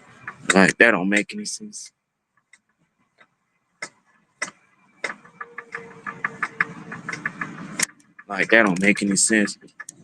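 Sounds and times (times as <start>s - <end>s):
sharp clicks: 2.4s - 10.0s.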